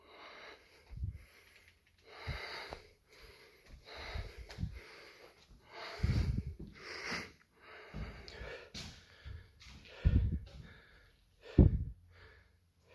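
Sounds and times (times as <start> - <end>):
person breathing roughly: 0.0 - 12.9.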